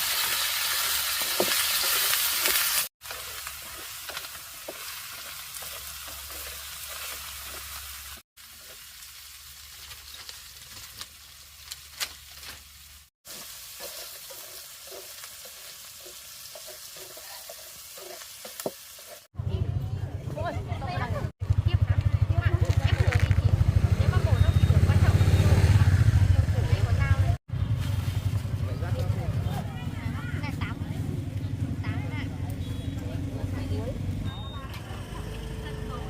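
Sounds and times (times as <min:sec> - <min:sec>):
meat sizzling in a pan: 0:00.0 - 0:19.3.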